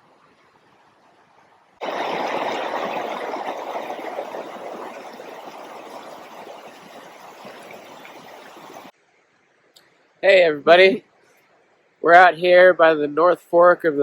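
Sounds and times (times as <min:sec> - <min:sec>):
river water rushing: 0:01.8 - 0:08.9.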